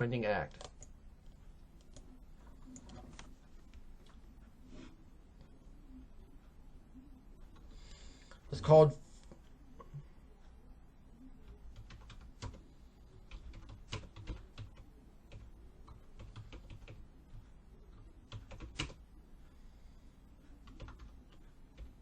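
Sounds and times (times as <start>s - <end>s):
keyboard typing: 0.4s - 4.4s, 11.4s - 19.0s, 20.5s - 22.0s.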